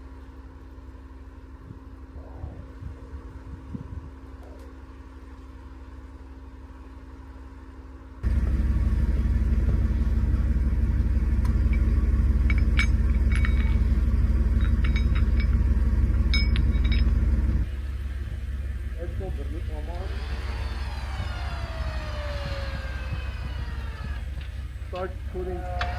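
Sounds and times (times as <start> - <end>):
car engine rumbling: 8.2 - 25.9
light metallic clinks: 8.2 - 25.9.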